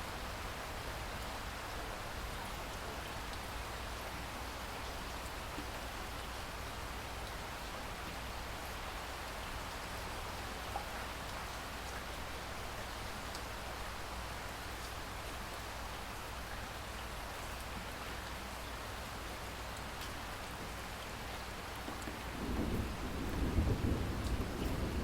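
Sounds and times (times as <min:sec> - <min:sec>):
steady rain hiss: 0:00.0 - 0:25.0
faint raindrop ticks: 0:02.6 - 0:03.6, 0:04.8 - 0:06.3, 0:07.2 - 0:07.4, 0:12.8 - 0:13.5, 0:14.7 - 0:15.6, 0:19.7 - 0:23.5, 0:24.1 - 0:25.0.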